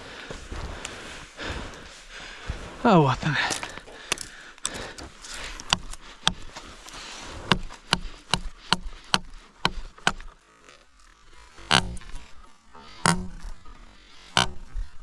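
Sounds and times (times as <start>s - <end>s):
knife chopping wooden branch: 7.4s - 10.2s, 13.0s - 13.5s.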